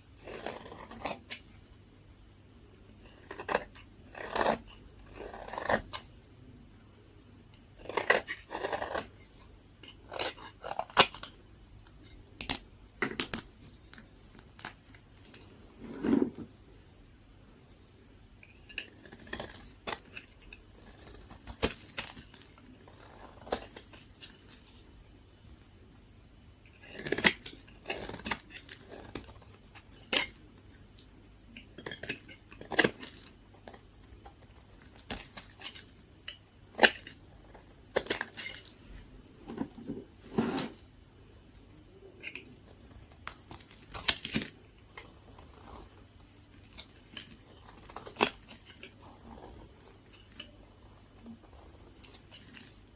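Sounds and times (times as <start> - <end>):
blade cracking dry soap: 18.7 - 24.4, 26.8 - 30.4, 31.7 - 38.7, 42.2 - 52.8.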